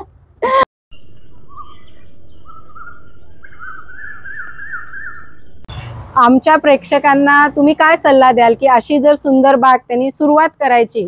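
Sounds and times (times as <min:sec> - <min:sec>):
birds singing: 0:00.9 - 0:05.7.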